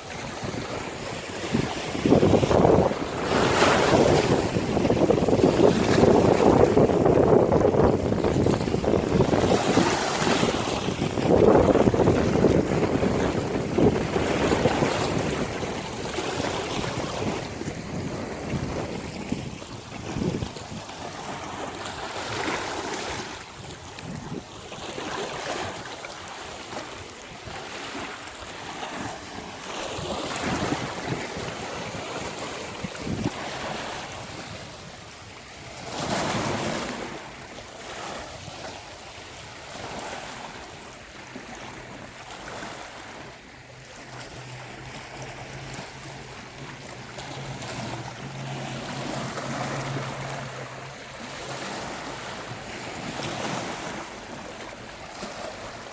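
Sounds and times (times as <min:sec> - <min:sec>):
wind buffeting microphone: 0:00.0 - 0:25.8, 0:28.7 - 0:37.2
sea waves breaking on beach: 0:00.0 - 0:55.9.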